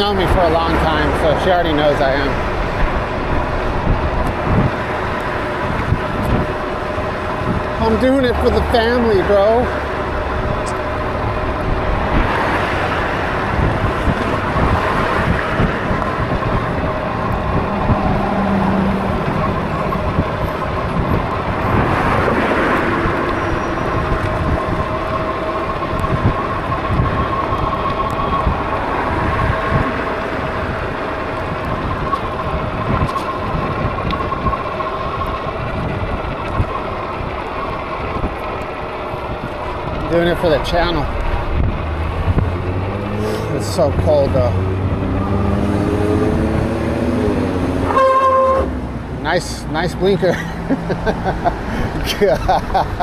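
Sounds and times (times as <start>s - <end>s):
road noise: 0.0s - 53.0s
wind rushing over microphone: 0.0s - 53.0s.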